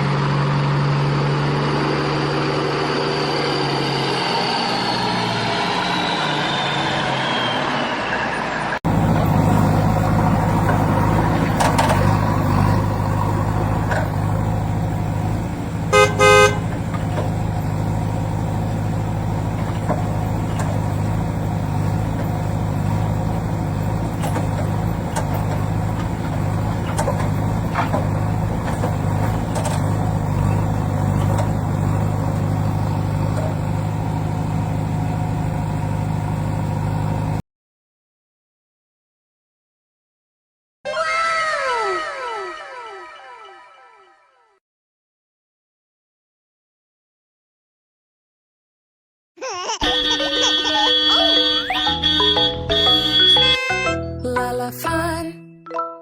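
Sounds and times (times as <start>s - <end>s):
vehicle engine humming: 0.0s - 37.4s, 49.8s - 54.1s
horn toots: 8.9s - 17.9s, 49.8s - 54.0s.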